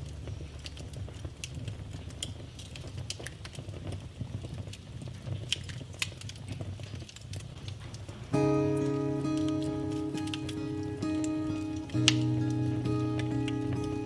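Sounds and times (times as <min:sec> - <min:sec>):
wood fire crackling: 0:00.0 - 0:14.0
sustained musical chord: 0:08.4 - 0:14.0.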